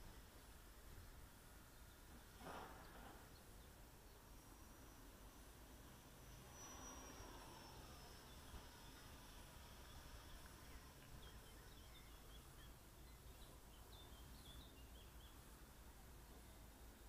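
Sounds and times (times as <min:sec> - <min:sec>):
faint bird chirps: 0:01.6 - 0:16.9.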